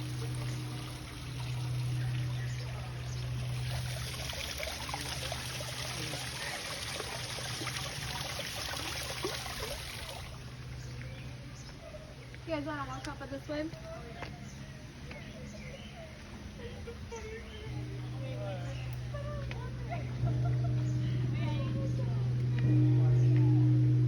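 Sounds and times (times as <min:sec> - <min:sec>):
stream water bubbling: 0:00.0 - 0:11.4
steady low hum: 0:00.0 - 0:24.0.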